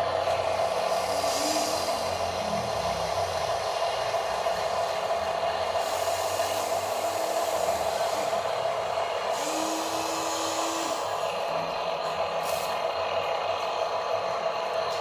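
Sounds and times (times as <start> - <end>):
toy truck motor whirring: 6.2 - 11.1.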